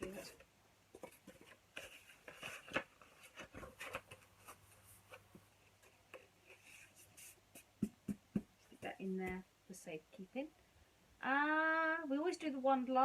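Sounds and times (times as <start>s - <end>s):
paper and card rustling: 0.0s - 9.0s.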